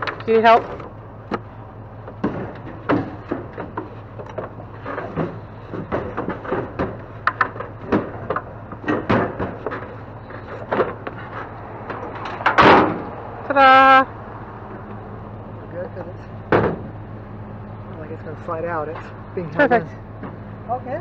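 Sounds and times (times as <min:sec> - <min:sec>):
steady low hum: 0:00.0 - 0:21.0
wooden cabinet knocks and clunks: 0:04.4 - 0:09.8.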